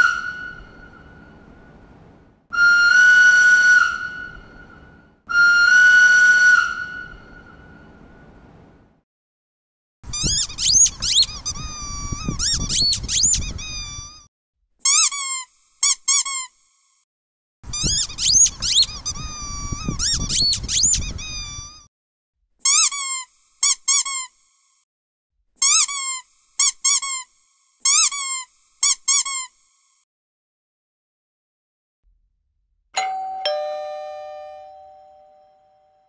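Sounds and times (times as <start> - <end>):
high-pitched squeaks: 10.1 - 14.3, 17.7 - 21.9.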